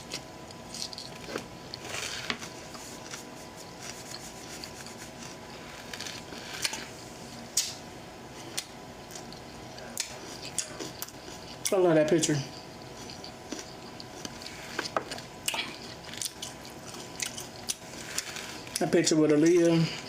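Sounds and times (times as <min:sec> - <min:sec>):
faint steady hum: 0:00.0 - 0:20.0
wet chewing sounds: 0:08.6 - 0:18.9.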